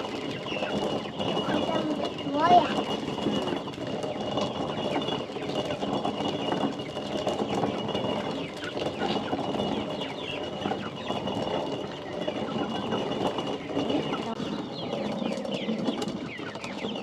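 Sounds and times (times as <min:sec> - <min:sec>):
birds chirping: 0:00.0 - 0:17.0
stone mill grinding corn: 0:00.0 - 0:17.0.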